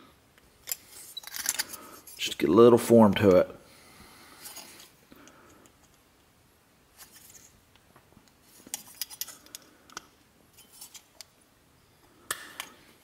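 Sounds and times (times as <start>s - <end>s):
pliers clicking and scraping metal: 0.6s - 2.2s, 8.6s - 11.3s.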